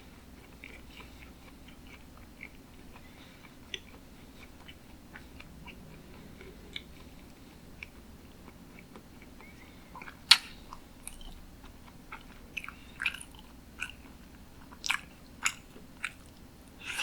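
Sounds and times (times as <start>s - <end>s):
faint low hum: 0.0s - 17.0s
wet chewing mouth clicks: 14.6s - 17.0s.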